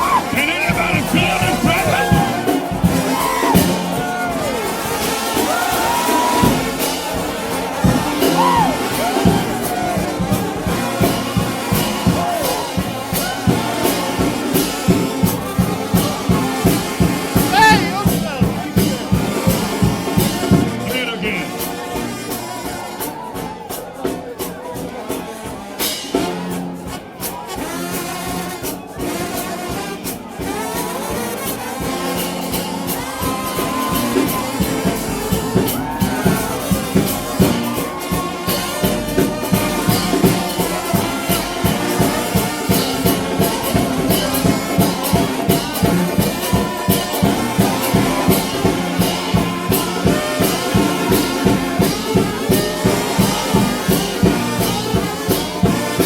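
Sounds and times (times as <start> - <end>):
drums: 0.0 - 56.0
trombone band playing: 0.0 - 56.0.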